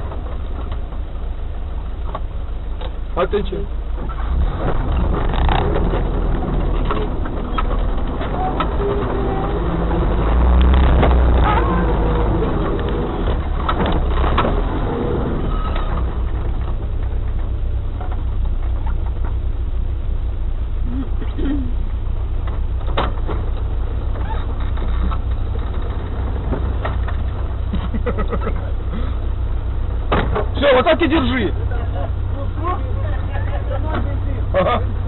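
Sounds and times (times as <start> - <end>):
off-road vehicle engine running: 0.0 - 35.0
vehicle body knocks and rattles: 3.9 - 19.6, 22.4 - 28.7, 30.0 - 31.0.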